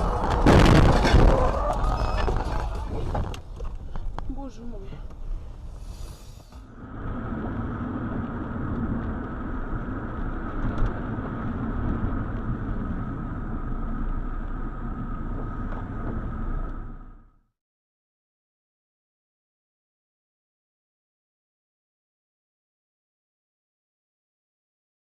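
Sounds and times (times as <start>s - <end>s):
car engine and road rumble: 0.0s - 17.4s.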